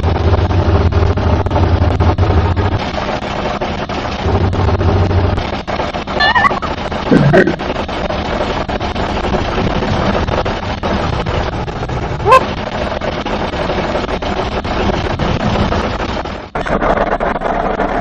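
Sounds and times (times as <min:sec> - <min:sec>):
short rising squeal: 0:06.2 - 0:06.8.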